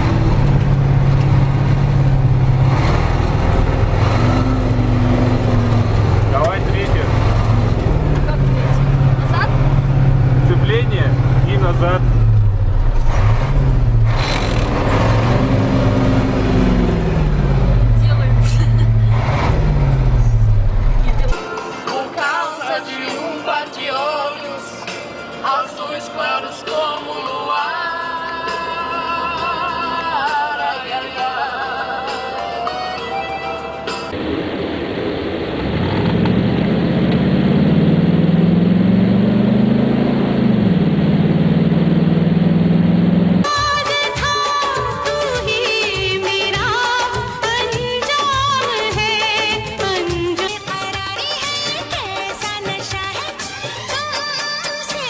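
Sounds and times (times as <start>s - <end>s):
truck engine revving: 0.0s - 21.4s, 34.1s - 43.6s.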